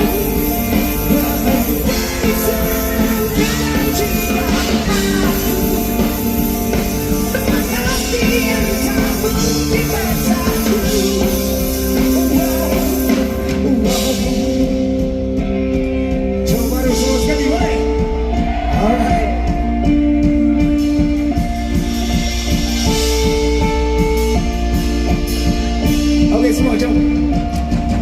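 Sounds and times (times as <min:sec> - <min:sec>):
person singing: 0:00.0 - 0:21.2
live rock band: 0:00.0 - 0:28.0.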